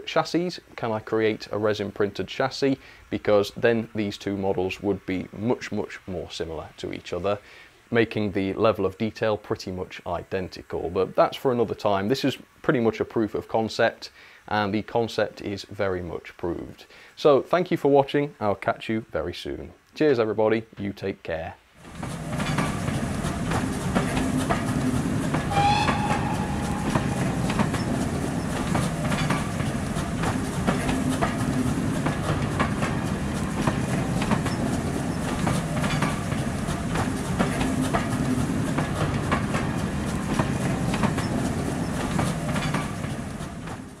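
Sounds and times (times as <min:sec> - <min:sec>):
train rumble on track: 0:21.8 - 0:44.0
wheels clicking over rail joints: 0:21.8 - 0:44.0
brief high tone: 0:25.5 - 0:28.6.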